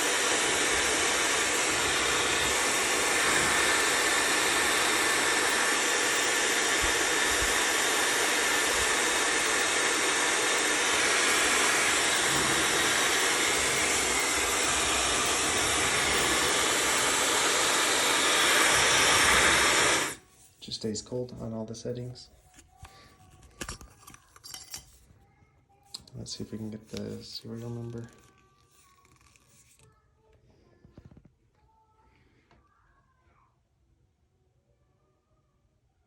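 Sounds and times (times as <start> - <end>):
hair dryer blowing air: 0.0 - 20.2.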